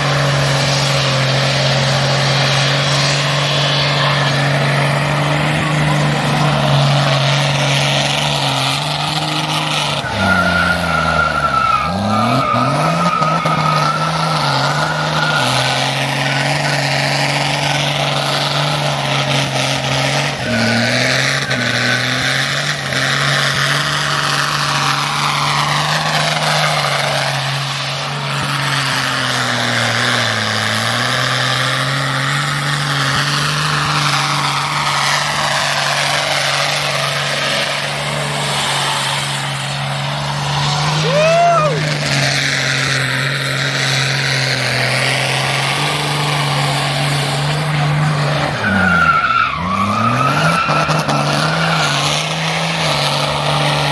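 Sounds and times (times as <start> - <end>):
race car engine revving: 0.0 - 53.9
tyre squeal: 6.5 - 17.6, 45.5 - 53.9.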